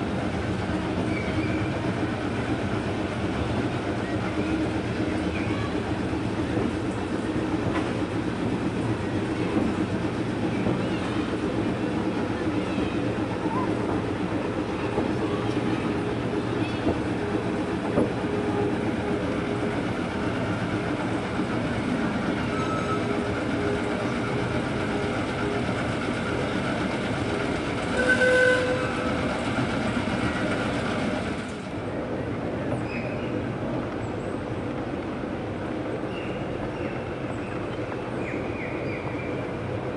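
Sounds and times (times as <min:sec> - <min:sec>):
train wheels rumbling on rails: 0:00.0 - 0:39.9
locomotive signal toot: 0:27.9 - 0:29.1.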